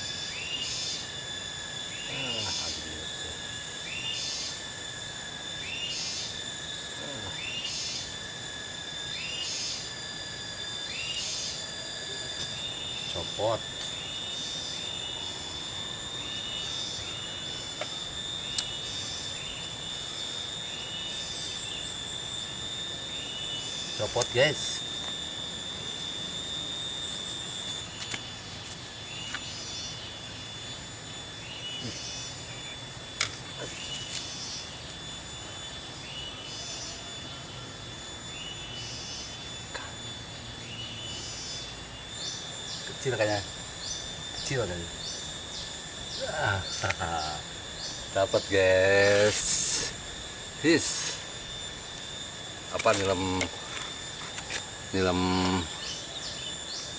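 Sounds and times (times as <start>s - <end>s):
cicadas droning: 0.0s - 56.9s
whistled rising bird call: 3.6s - 28.4s, 33.6s - 39.7s.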